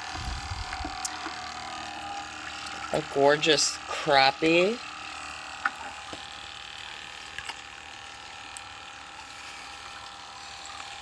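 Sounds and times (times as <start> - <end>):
pond pump hum: 0.0 - 11.0
running water: 0.2 - 4.6.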